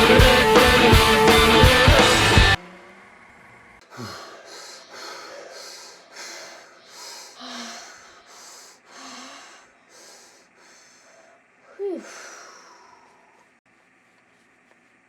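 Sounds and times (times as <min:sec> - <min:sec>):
person grunting: 0:03.8 - 0:04.9
person breathing heavily: 0:03.8 - 0:13.6.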